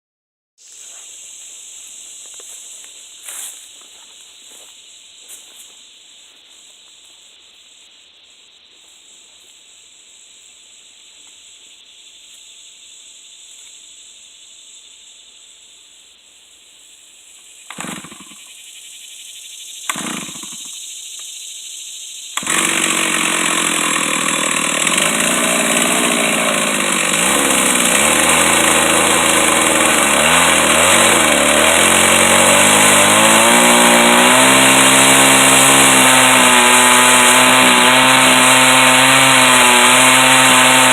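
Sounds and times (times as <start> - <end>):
chainsaw starting and running: 17.7 - 18.4, 19.9 - 20.7, 22.4 - 40.9.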